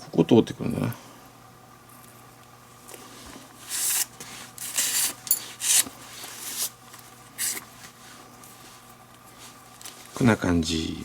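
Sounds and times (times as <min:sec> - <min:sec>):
lace rasping through leather: 0:03.7 - 0:06.7, 0:07.4 - 0:07.6.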